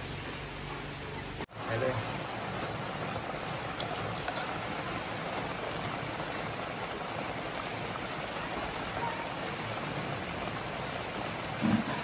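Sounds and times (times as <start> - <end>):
rain falling steadily: 0.0 - 12.0.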